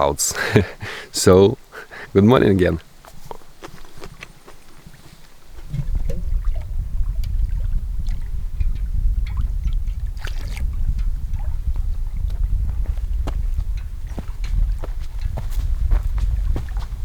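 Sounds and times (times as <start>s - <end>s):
wind buffeting microphone: 4.9s - 17.0s.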